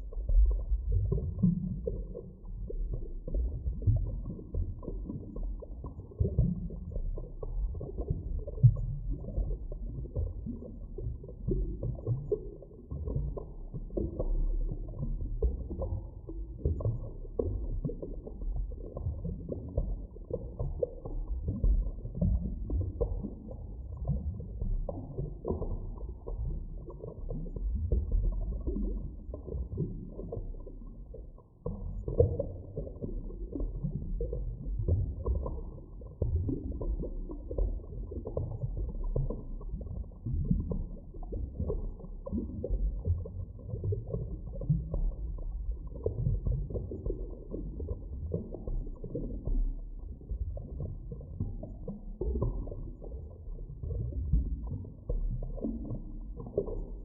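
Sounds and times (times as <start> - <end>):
underwater low rumble: 0.0 - 57.0.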